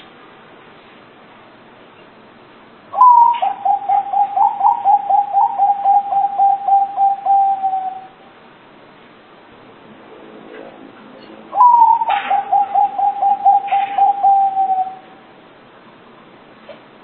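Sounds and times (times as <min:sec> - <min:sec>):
dove cooing: 0:03.0 - 0:08.2, 0:11.5 - 0:15.2.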